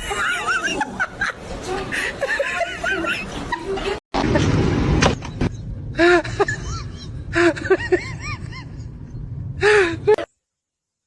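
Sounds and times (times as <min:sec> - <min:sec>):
steady low rumble: 0:04.2 - 0:10.1.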